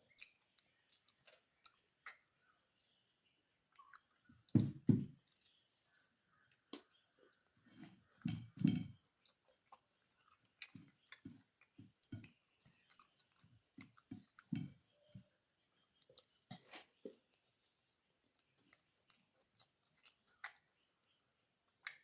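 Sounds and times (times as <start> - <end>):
person chewing food: 0.0 - 2.6, 3.5 - 22.0
wet mouth clicks and smacks: 19.6 - 20.7.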